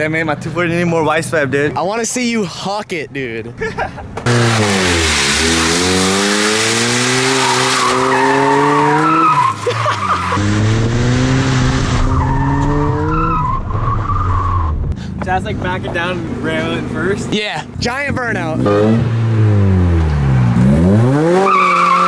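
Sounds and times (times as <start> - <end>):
tyres skidding over asphalt: 4.2 - 17.3
car engine revving: 4.2 - 22.0.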